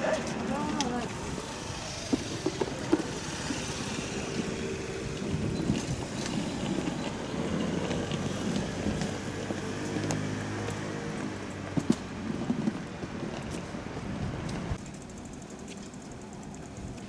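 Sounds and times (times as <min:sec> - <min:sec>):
electric train motor hum: 0:00.0 - 0:09.7
train wheel and track noise: 0:00.0 - 0:17.0.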